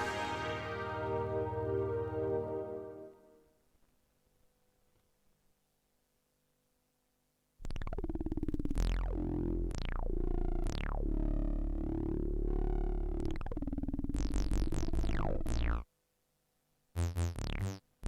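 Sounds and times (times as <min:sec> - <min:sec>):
deep held synth bass note: 0:00.0 - 0:03.1
falling synth sweeps: 0:00.0 - 0:03.3.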